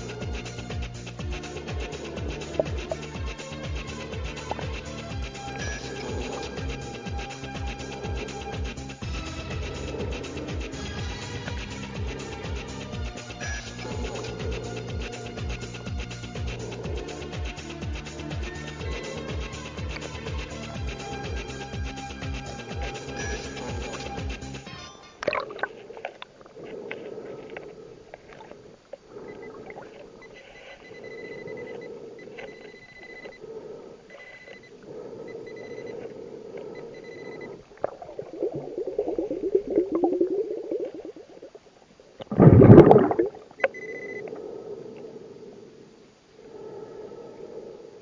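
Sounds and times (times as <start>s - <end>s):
diver's regulator bubbles: 0.0s - 24.4s, 25.2s - 33.4s, 34.4s - 44.8s.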